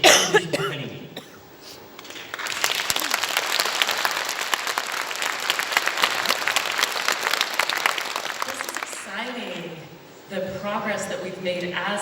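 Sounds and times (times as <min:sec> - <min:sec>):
audience applause: 0:02.1 - 0:09.6.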